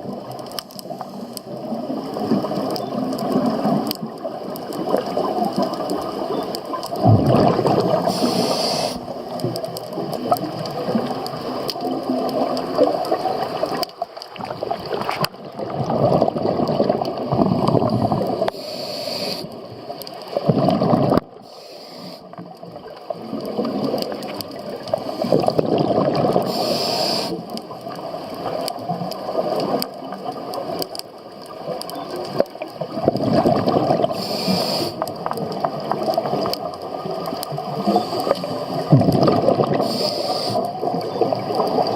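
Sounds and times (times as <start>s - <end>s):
regulator inhale hiss: 0.8s - 1.6s, 8.0s - 9.2s, 18.4s - 19.6s, 21.4s - 22.4s, 26.4s - 27.6s, 34.0s - 35.2s, 37.8s - 38.8s, 39.7s - 40.8s
bubbling regulator exhales: 1.5s - 9.3s, 14.4s - 18.6s, 20.4s - 21.4s, 23.3s - 27.5s, 32.9s - 36.1s, 37.6s - 41.9s.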